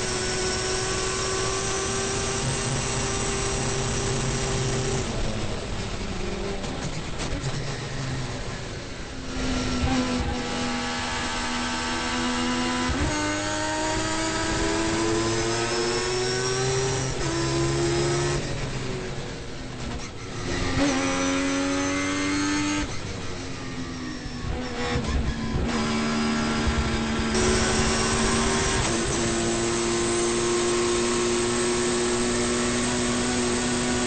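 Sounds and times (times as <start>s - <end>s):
rotary engine accelerating: 9.3s - 19.4s, 23.8s - 34.0s.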